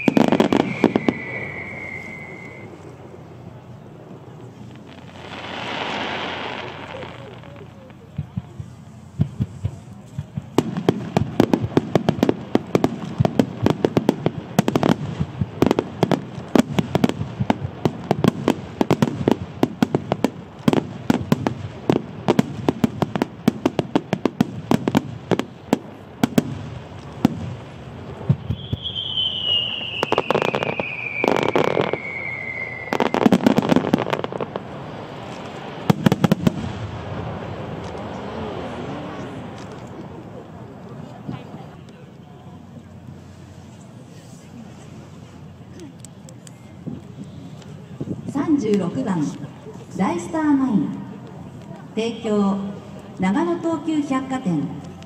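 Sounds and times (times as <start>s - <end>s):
falling firework whistle: 0.0s - 3.2s, 28.3s - 34.4s
fireworks bursting: 0.0s - 41.8s.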